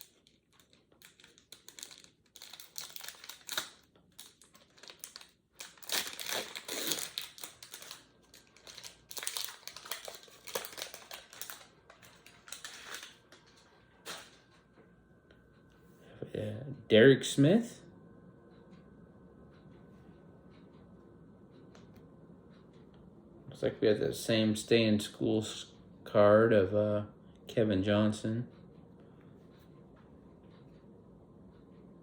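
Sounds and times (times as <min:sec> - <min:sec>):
card pack wrapper tearing: 0:00.0 - 0:13.2
cards rustling and clicking: 0:00.0 - 0:14.4
wrapper crinkling: 0:00.0 - 0:14.4.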